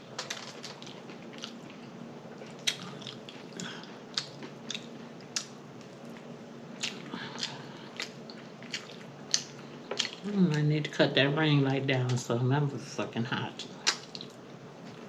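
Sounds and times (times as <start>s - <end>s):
chewing food: 0.2s - 10.6s, 13.6s - 15.0s
lip smacking: 2.5s - 6.2s, 6.8s - 10.6s, 13.6s - 14.4s.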